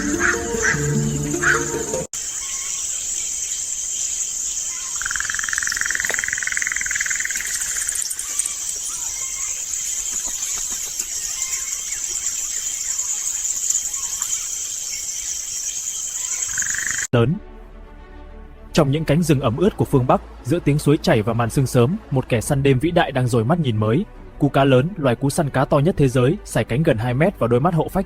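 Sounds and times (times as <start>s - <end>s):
crickets chirping: 0.0s - 17.1s
pulsing insect trill: 0.0s - 17.1s.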